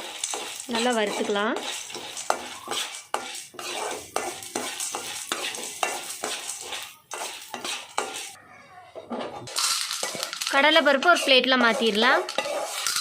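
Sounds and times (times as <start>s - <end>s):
light sizzle: 0.0s - 8.4s, 9.5s - 13.0s
spoon scraping in a pan: 0.0s - 8.4s, 9.0s - 13.0s.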